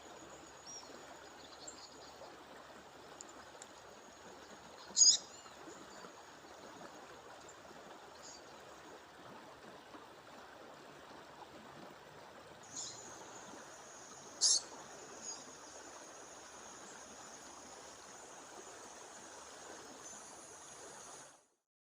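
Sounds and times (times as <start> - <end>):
bird chirping: 5.0 - 5.5, 12.7 - 13.1, 14.4 - 15.4.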